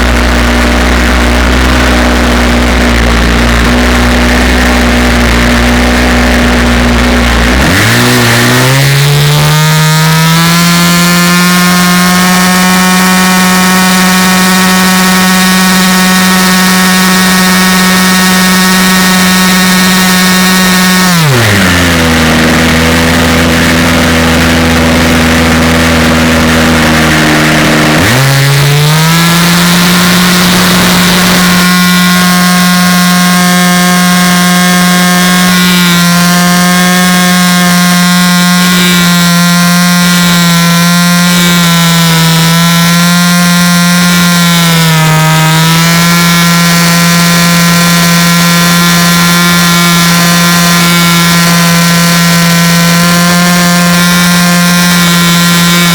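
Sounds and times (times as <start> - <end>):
motor humming: 0.0 - 55.9.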